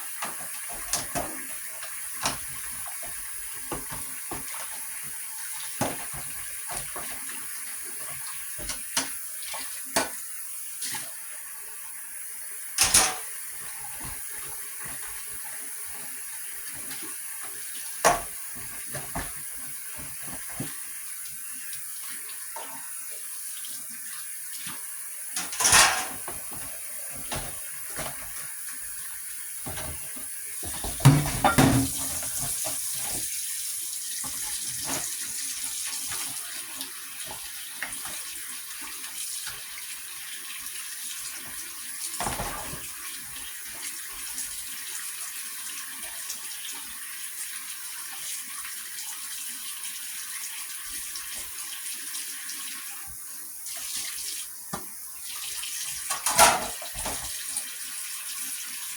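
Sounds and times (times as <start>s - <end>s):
running water rushing: 12.8s - 38.4s.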